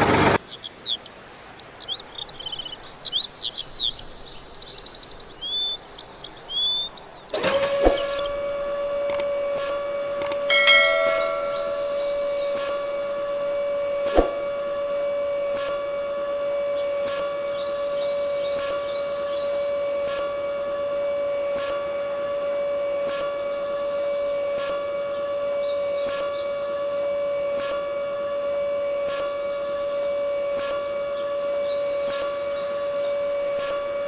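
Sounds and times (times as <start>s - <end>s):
toy motor whining: 7.4s - 34.0s
sharp click: 9.0s - 9.3s, 10.2s - 10.5s.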